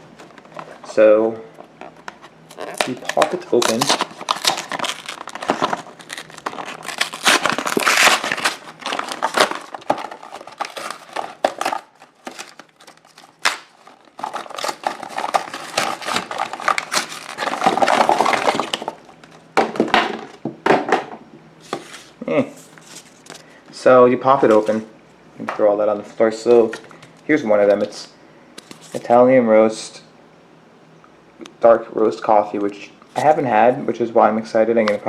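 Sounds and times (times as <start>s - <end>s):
cardboard packing crinkling: 1.6s - 19.5s, 21.7s - 23.5s.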